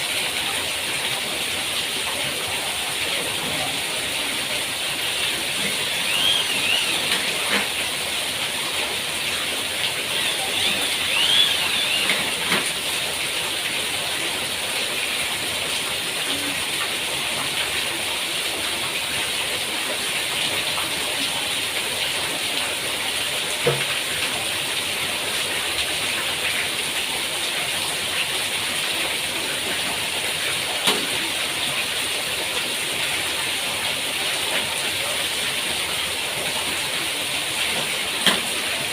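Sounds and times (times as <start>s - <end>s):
rain falling: 0.0s - 38.9s.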